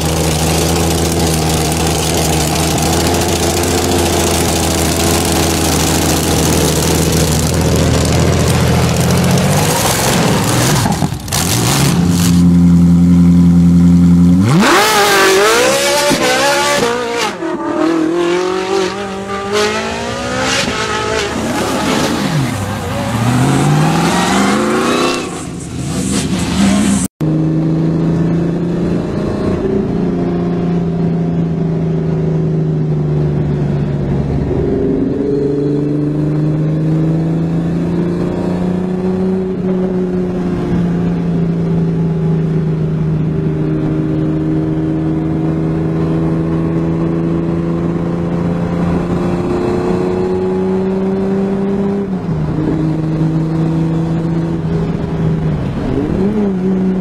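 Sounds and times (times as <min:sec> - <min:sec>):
car engine revving hard: 0:14.4 - 0:25.6.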